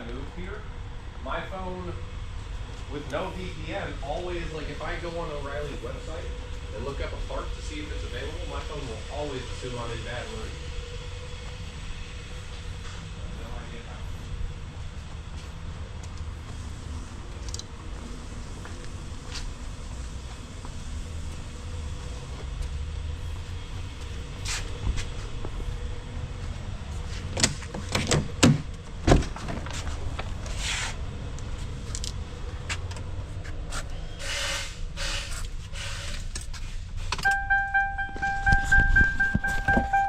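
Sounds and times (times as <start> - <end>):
knocks and rattling handling noises: 27.3 - 30.5
chiming background music: 37.3 - 40.0.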